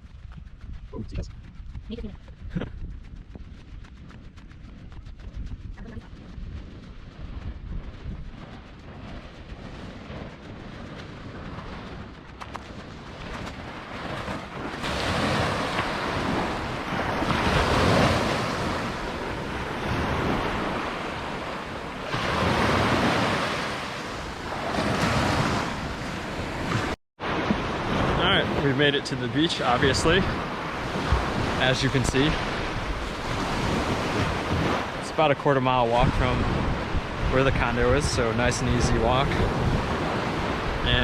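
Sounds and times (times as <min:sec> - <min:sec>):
wind rumbling on microphone: 0:00.0 - 0:41.0
ocean surf washing onto beach: 0:08.4 - 0:41.0.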